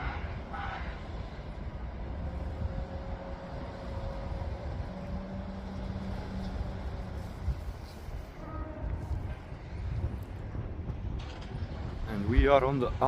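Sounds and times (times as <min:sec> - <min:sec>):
electric train pulling away: 0:00.0 - 0:09.9.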